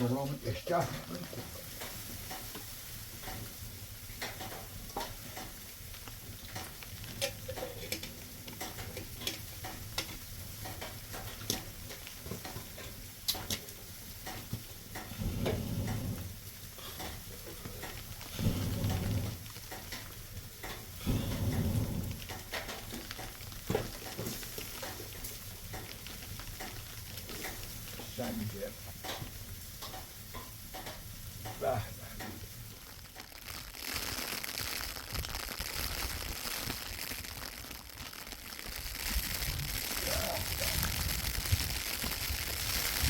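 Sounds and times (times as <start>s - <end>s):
light crackling and clicking: 0.1s - 43.0s
muffled low rumbles: 15.1s - 24.6s, 30.3s - 33.0s.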